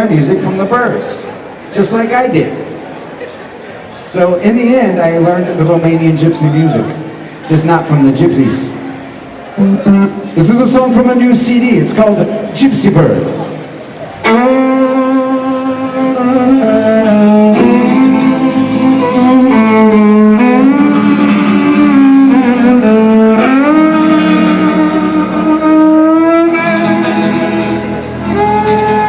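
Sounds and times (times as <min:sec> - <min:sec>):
bowed strings sliding notes: 0:14.1 - 0:29.0.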